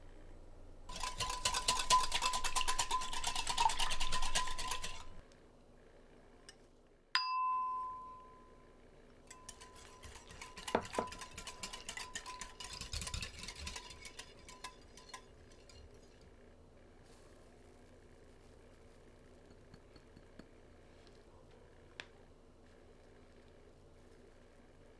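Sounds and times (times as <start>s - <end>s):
batter stirring and scraping: 0.9s - 5.2s, 9.3s - 21.4s
utensil clinking against bowl: 0.9s - 5.2s, 9.3s - 16.2s.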